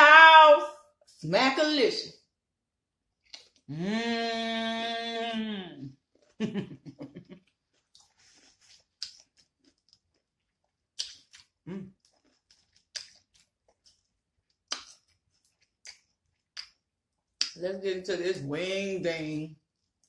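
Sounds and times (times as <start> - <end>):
chewing and lip-smacking: 3.2 - 3.7, 7.3 - 17.6.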